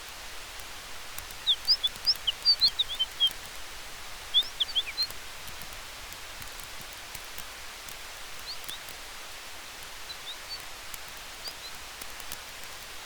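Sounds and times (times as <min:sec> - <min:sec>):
campfire crackling: 0:00.0 - 0:13.0
wind through trees: 0:00.0 - 0:13.0
high bird chirps: 0:01.4 - 0:03.4, 0:04.3 - 0:05.1, 0:10.1 - 0:10.6.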